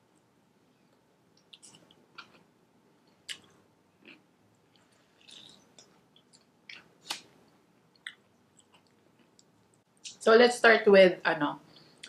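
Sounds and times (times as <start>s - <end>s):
person chewing crunchy food: 3.2s - 7.2s.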